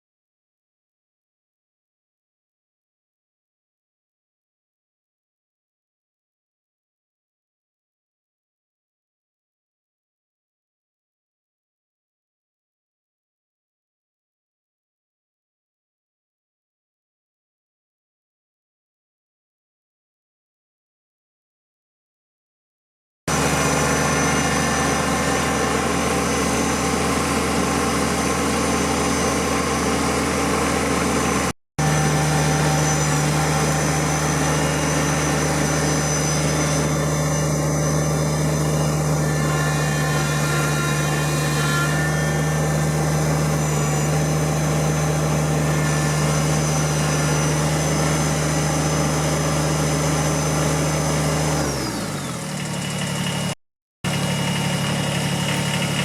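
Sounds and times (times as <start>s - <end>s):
tractor diesel engine running: 23.3s - 56.0s.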